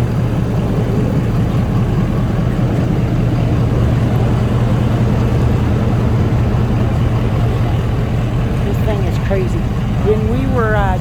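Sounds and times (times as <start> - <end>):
low machine drone: 0.0 - 11.0.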